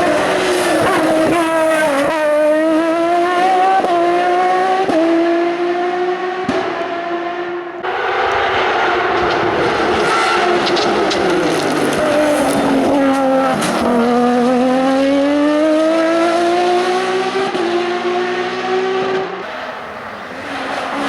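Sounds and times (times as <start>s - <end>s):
race car engine accelerating: 0.0s - 21.0s.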